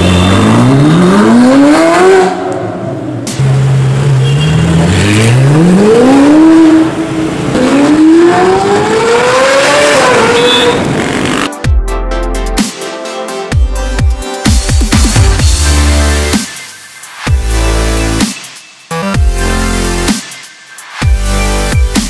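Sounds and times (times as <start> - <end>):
loud car engine accelerating: 0.0 - 11.5.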